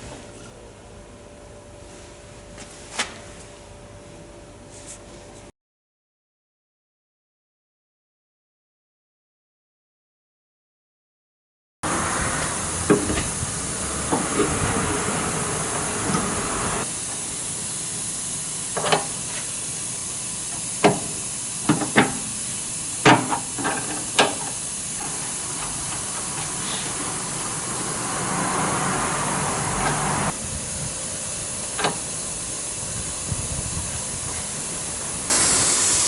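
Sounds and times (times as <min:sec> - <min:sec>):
steady hiss: 0:11.9 - 0:36.0.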